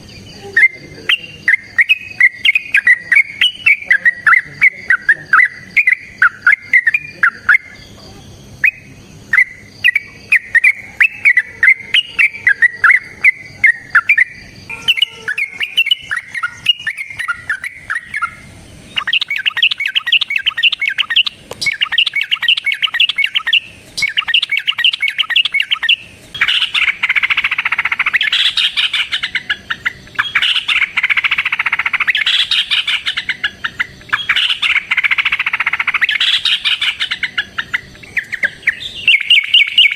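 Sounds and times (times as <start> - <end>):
bulbuls chattering calls: 0.0 - 39.9.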